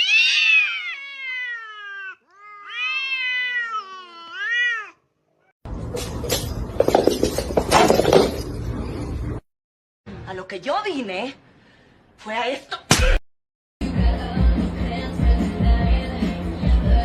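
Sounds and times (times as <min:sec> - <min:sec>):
cat meowing: 0:00.0 - 0:05.5.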